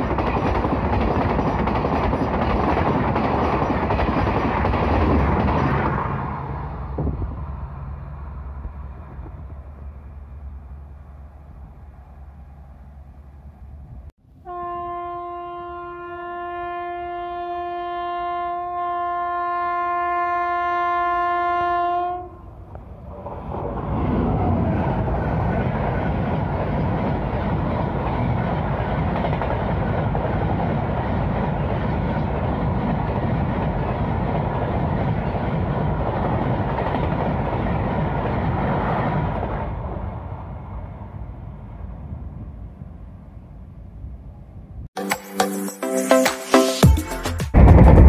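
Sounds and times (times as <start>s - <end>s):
train passing with rumbling wheels: 0.0s - 16.9s, 17.6s - 45.0s, 47.5s - 48.0s
train horn blast: 14.4s - 22.5s.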